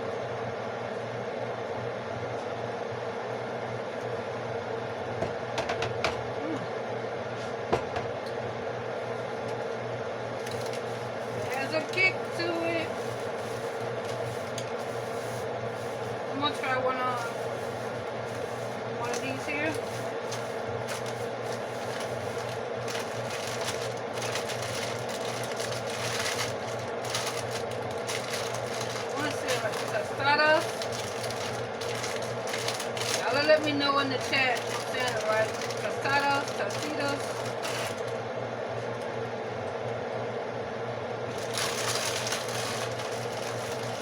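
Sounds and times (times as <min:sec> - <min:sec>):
steady background hum: 0:00.0 - 0:44.0
crunching and chewing: 0:10.4 - 0:11.4, 0:19.8 - 0:29.9, 0:30.6 - 0:33.7, 0:41.3 - 0:44.0
crisp shells crackling: 0:10.4 - 0:38.2, 0:41.3 - 0:44.0.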